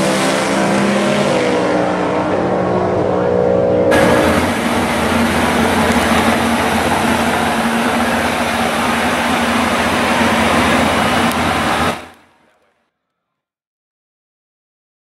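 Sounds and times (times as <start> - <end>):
car engine idling: 3.9 - 12.7.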